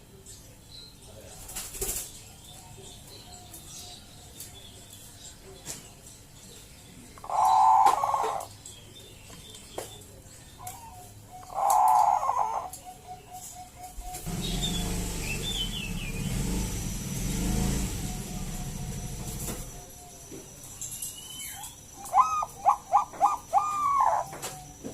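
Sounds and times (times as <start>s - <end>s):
dove cooing: 7.2s - 8.5s, 10.6s - 16.6s, 22.0s - 24.9s.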